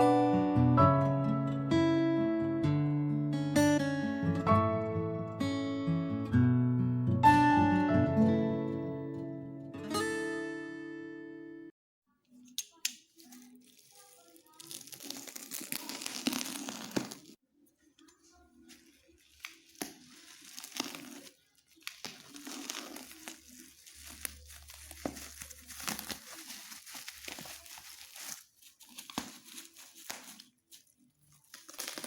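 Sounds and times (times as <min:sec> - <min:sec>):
packaging tearing and crinkling: 0:12.6 - 0:17.4, 0:18.6 - 0:32.0.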